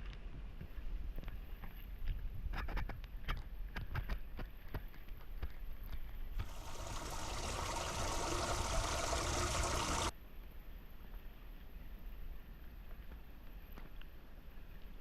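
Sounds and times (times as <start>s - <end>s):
floodwater rushing into storm drain: 6.4s - 10.1s.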